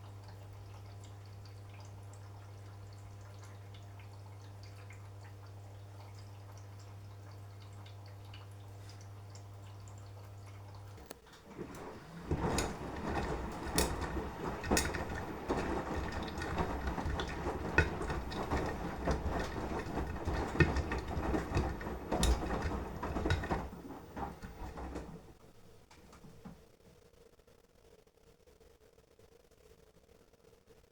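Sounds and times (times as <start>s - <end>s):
laundry sloshing in water: 10.7s - 26.4s
washing machine drum turning: 10.8s - 26.6s
clicks and knocks: 11.0s - 26.6s.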